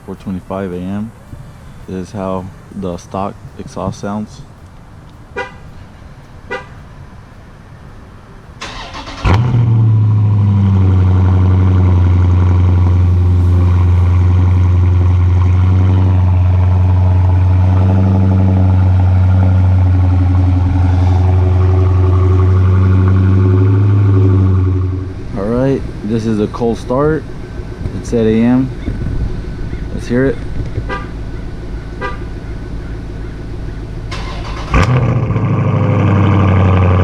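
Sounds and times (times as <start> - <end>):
car engine idling: 0.0 - 37.0
starter motor cranking: 8.6 - 10.6, 34.0 - 37.0.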